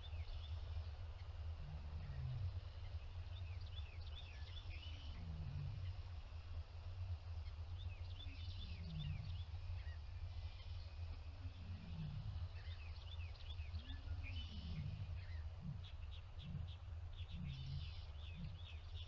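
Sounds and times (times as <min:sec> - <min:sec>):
steady low hum: 0:00.0 - 0:19.0
small birds chirping: 0:07.2 - 0:19.0.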